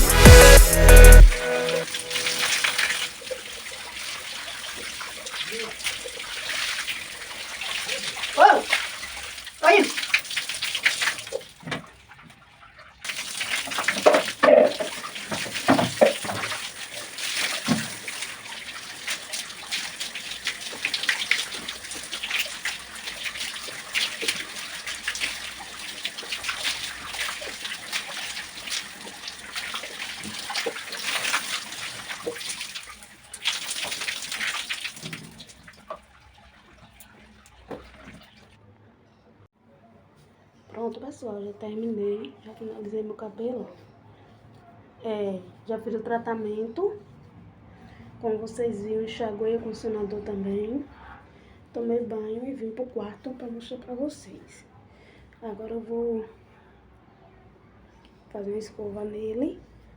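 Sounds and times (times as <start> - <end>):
shower water running and splashing: 0.0 - 38.5.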